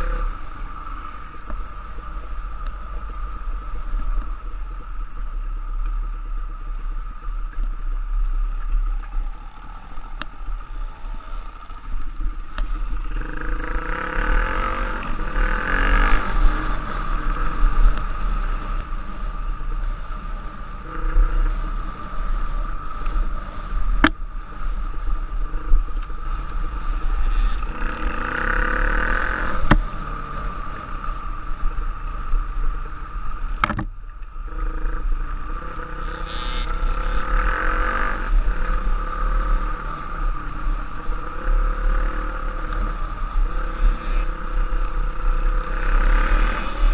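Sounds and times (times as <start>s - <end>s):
wind rumble on microphone: 0.0s - 46.9s
dirt bike engine revving: 13.0s - 17.6s, 27.0s - 29.8s, 34.5s - 42.7s, 43.4s - 46.9s.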